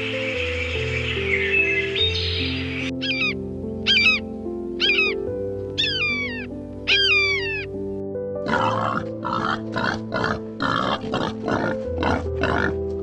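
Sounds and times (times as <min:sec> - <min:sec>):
background music: 0:00.0 - 0:13.0
animal grunt-like calls: 0:08.4 - 0:12.8.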